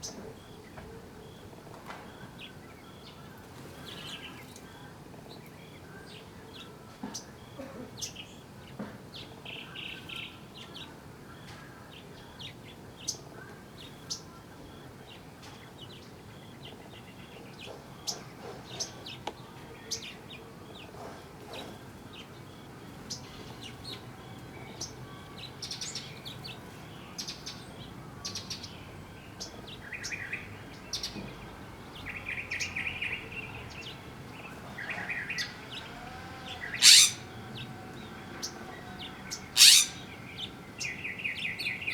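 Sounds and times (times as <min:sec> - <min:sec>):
small birds chirping: 0:00.0 - 0:41.9
buzzy bird trills: 0:34.8 - 0:41.0.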